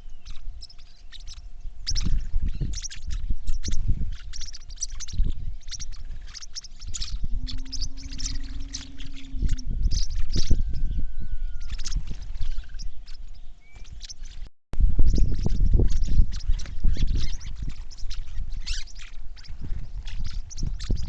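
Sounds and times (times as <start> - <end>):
birds chirping: 0.0 - 21.0
held pitched bird call: 0.0 - 21.0
low thumps: 7.0 - 10.9.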